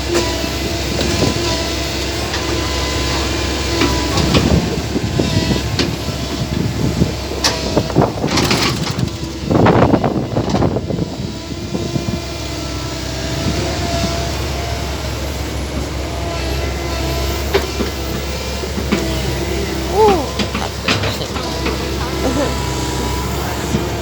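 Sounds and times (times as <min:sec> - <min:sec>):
motor droning: 0:00.0 - 0:24.0
rattling burst: 0:08.2 - 0:09.8.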